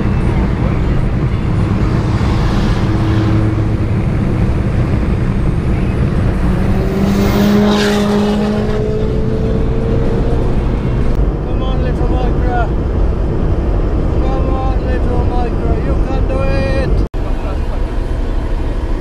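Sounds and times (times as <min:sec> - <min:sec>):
car passing close: 0:00.0 - 0:11.2
car engines running: 0:00.0 - 0:19.0.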